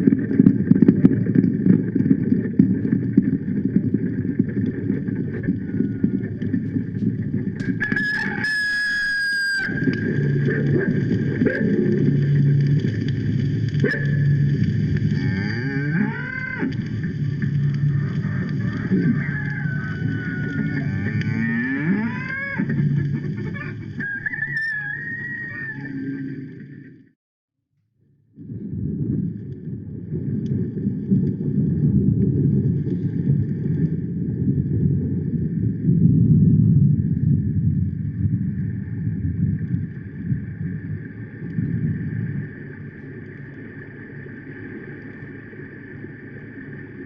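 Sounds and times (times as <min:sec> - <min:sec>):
low engine-like rumble: 0:00.0 - 0:07.9, 0:09.7 - 0:24.2, 0:28.3 - 0:47.0
record surface noise: 0:00.0 - 0:27.0, 0:28.6 - 0:35.9, 0:36.7 - 0:47.0
cattle mooing: 0:15.0 - 0:16.8, 0:18.0 - 0:23.7.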